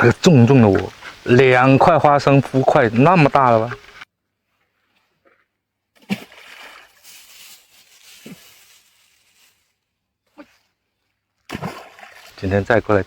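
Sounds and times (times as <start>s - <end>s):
water sloshing and splashing: 5.9s - 8.4s, 11.4s - 12.6s.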